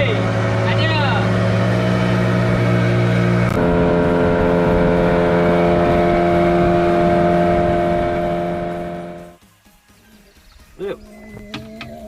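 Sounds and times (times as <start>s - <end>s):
boat engine running: 0.0s - 9.4s.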